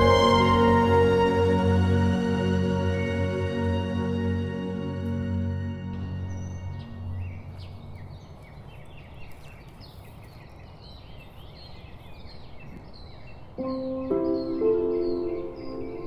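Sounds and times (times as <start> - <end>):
outdoor background hiss: 0.0 - 16.0
small birds chirping: 6.0 - 16.0.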